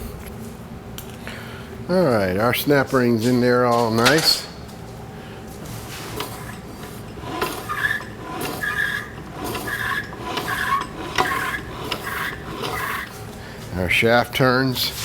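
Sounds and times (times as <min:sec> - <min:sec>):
metallic scraping and rubbing: 0:05.7 - 0:13.2.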